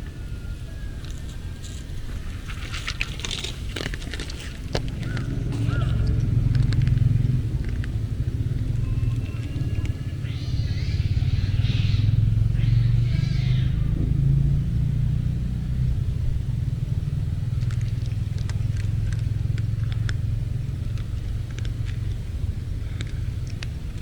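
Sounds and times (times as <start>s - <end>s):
low rumble: 0.0s - 24.0s
cat chewing dry food: 1.0s - 9.9s, 17.4s - 24.0s
cats crying: 4.8s - 6.4s.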